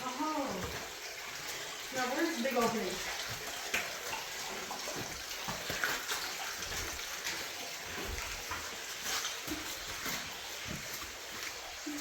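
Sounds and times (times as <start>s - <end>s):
running water: 0.0s - 12.0s
small knocks and scuffs: 2.6s - 11.7s.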